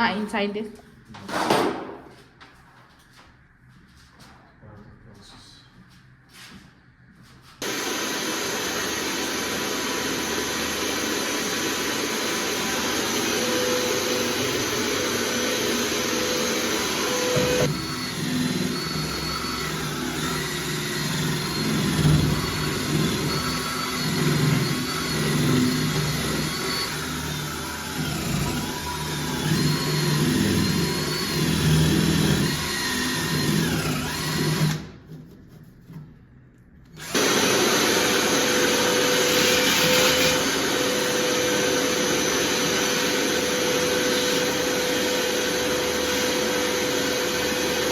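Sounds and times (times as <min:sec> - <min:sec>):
electric drill boring wood: 0:07.6 - 0:35.0, 0:37.0 - 0:47.9.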